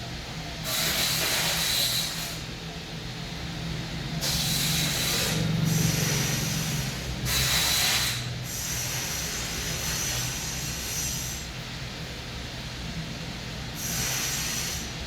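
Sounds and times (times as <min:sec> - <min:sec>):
hissing breaths through the nose: 0:13.8 - 0:14.9.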